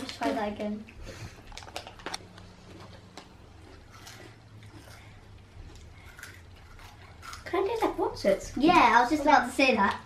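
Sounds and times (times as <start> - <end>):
chewing crunchy snacks: 0.0 - 8.0
steady low hum: 0.0 - 10.0.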